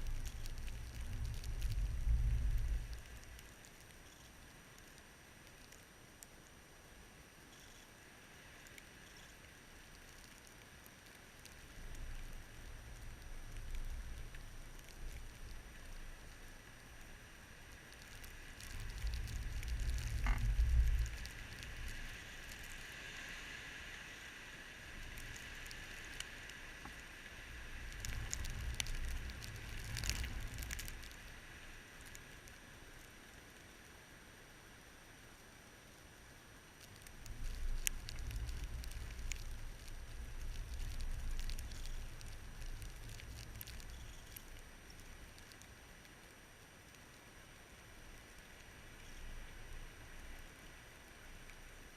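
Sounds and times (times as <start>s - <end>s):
wind rumbling on microphone: 0.0s - 4.3s, 11.5s - 32.4s, 36.9s - 45.7s
ticking and patter: 0.0s - 5.0s, 17.9s - 22.0s, 27.9s - 31.2s, 36.8s - 45.7s.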